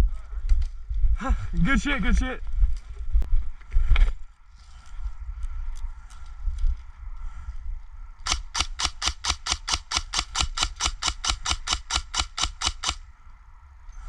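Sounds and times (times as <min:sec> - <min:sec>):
airsoft gun rapid shots: 0:08.2 - 0:13.0.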